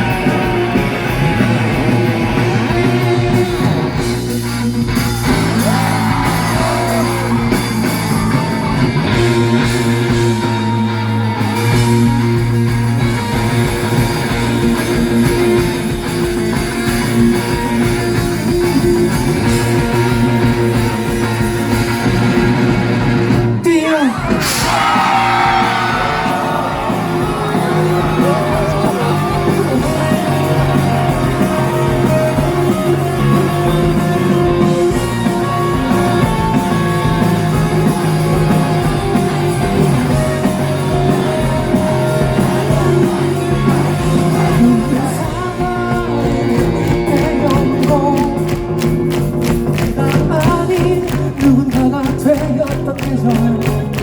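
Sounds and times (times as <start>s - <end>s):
crowd shouting: 0.0s - 4.0s, 4.9s - 12.5s, 23.8s - 47.5s
live rock band playing: 0.0s - 54.0s.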